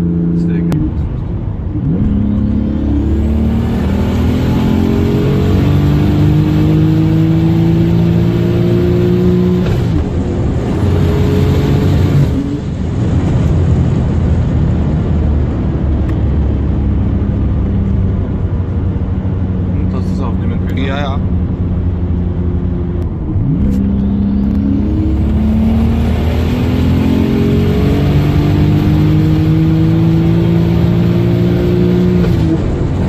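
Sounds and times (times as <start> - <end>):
car engine accelerating hard: 0.0 - 33.0
turbo whine: 22.6 - 26.0.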